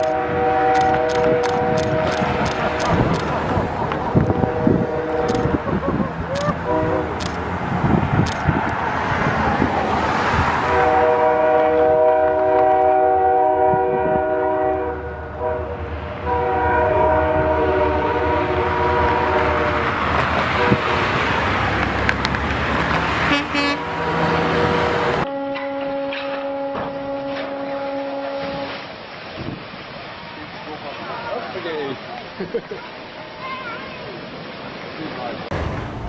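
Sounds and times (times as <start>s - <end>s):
ship's horn blasts: 0.0s - 3.2s, 4.1s - 5.6s, 6.5s - 7.2s, 10.7s - 21.2s, 23.2s - 28.9s
loud continuous rushing noise: 0.0s - 11.8s.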